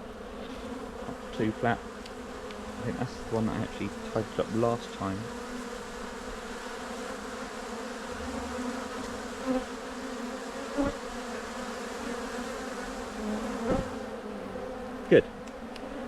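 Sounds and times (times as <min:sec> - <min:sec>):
honey bees buzzing: 0:00.0 - 0:16.0.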